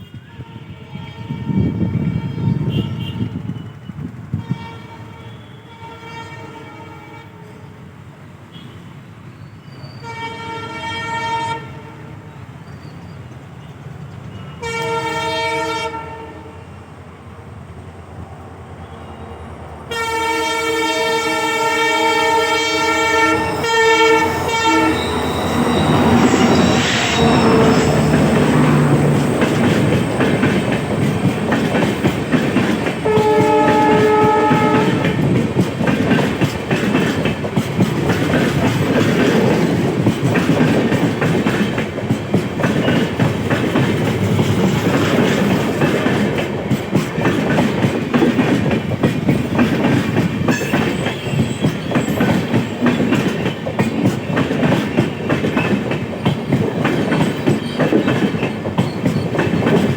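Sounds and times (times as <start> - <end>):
train horn: 0.0 - 7.8, 9.8 - 12.5, 14.3 - 16.8, 19.9 - 36.2
train wheels clattering over rail joints: 23.1 - 59.9.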